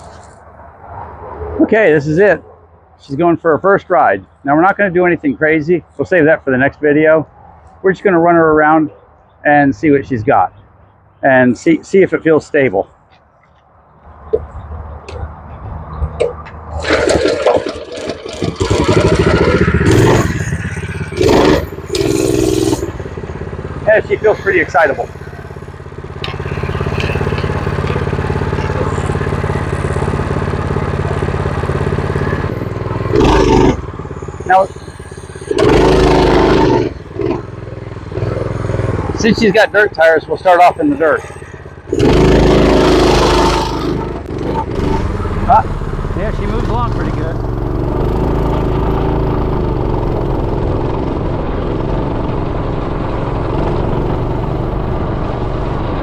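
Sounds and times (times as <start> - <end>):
minibike engine under load: 0.0 - 1.2, 14.0 - 56.0.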